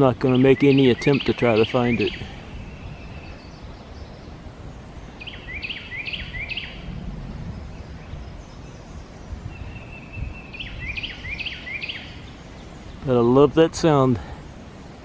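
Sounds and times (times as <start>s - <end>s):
wren singing whistled notes: 0.2s - 13.3s
steady low rumble: 6.7s - 10.9s.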